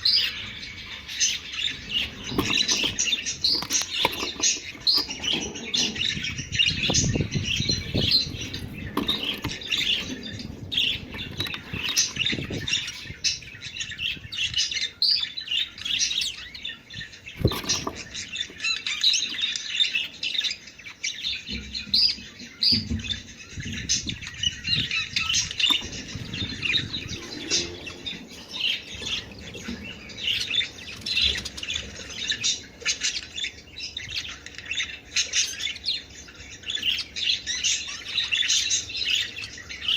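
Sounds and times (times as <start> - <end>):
budgerigar flock chattering: 0.0 - 39.9
low thumps and rustles: 1.1 - 13.6, 17.3 - 18.7, 21.5 - 31.4.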